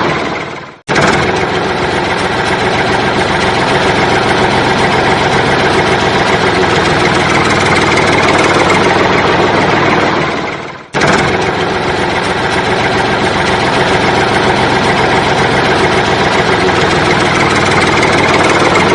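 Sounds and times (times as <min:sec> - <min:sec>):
loud motor running: 0:00.0 - 0:18.9.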